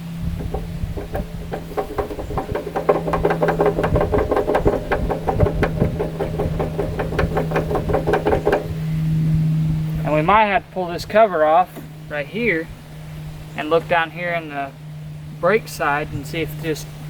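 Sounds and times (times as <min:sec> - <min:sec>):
steady low hum: 0:00.0 - 0:17.0
rapid metallic clicking: 0:00.2 - 0:09.0.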